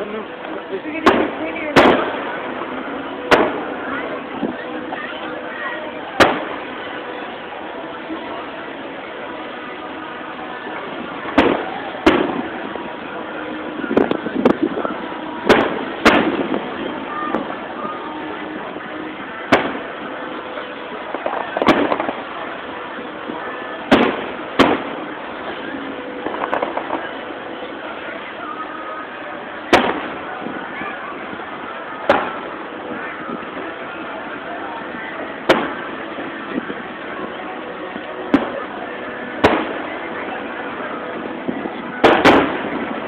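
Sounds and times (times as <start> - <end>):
firework shells booming: 1.0 - 3.8, 6.2 - 6.7, 11.2 - 12.7, 15.4 - 17.6, 19.5 - 20.0, 21.1 - 22.2, 23.8 - 27.2, 29.7 - 30.6, 32.0 - 32.4, 35.4 - 35.9, 39.4 - 39.9, 41.6 - 43.0.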